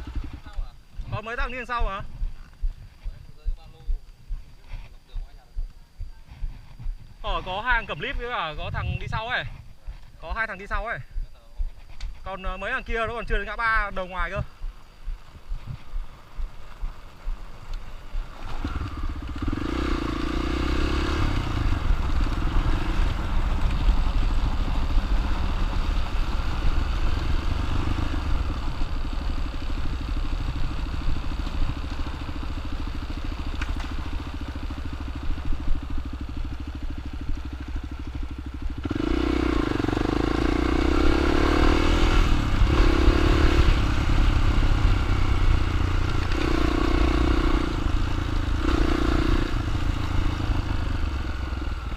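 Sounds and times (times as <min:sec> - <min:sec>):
dirt bike engine running: 0:00.0 - 0:51.9.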